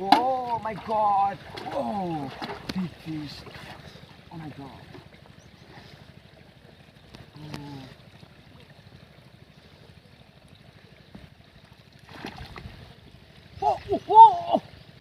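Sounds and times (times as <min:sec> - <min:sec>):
faint running water: 0:00.0 - 0:15.0
low steady rumble: 0:00.0 - 0:15.0.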